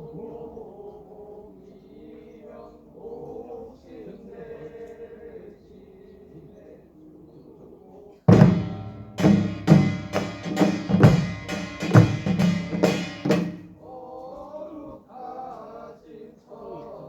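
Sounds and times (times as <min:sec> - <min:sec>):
voices chanting together: 0:00.0 - 0:17.0
loud ringing percussion strikes: 0:08.3 - 0:13.9.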